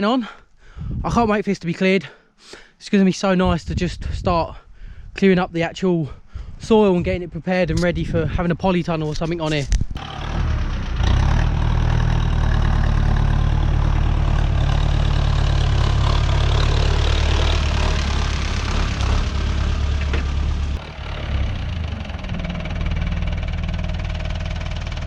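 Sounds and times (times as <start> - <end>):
tractor diesel engine running: 10.0 - 25.0.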